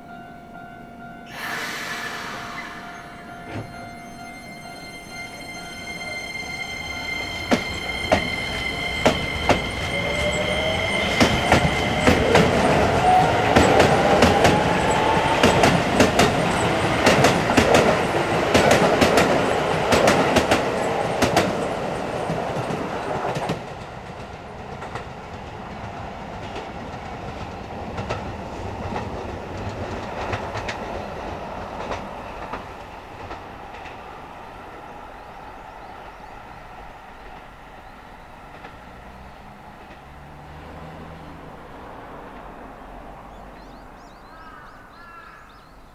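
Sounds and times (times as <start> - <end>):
electric train inverter whine: 0.0 - 43.3
train rumble: 0.0 - 44.6
wheels clicking over rail joints: 7.5 - 34.9, 35.8 - 44.4.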